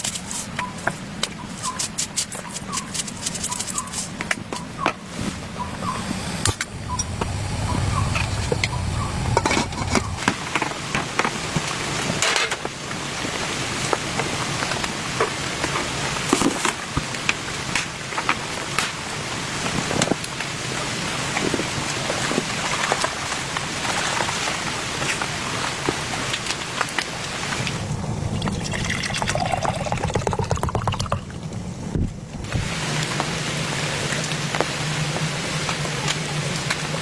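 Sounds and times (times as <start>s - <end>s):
steady rain falling: 2.9s - 30.6s, 31.4s - 37.0s
low rumble: 5.6s - 10.5s, 27.6s - 32.6s.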